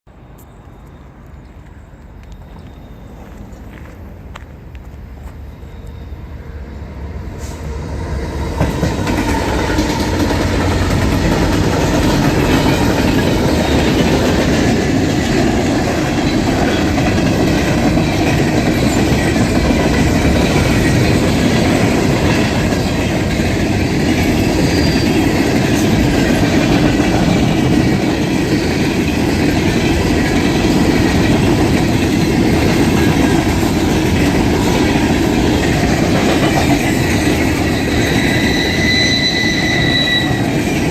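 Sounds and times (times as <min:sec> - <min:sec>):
freight train wheels clattering: 0:08.3 - 0:40.9.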